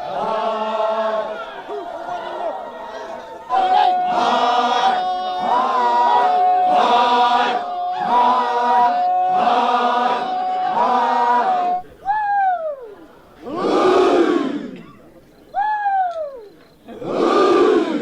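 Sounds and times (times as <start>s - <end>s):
voices chanting in unison: 0.0s - 12.1s, 13.0s - 15.7s, 16.5s - 18.0s.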